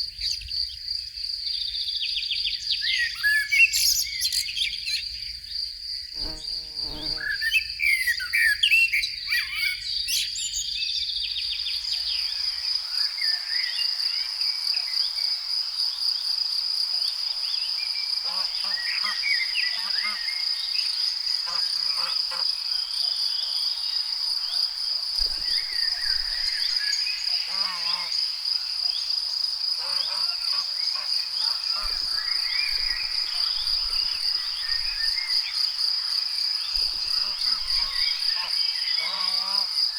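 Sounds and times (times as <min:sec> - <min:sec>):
crickets chirping: 0:00.0 - 0:39.9
birds calling: 0:29.8 - 0:35.5.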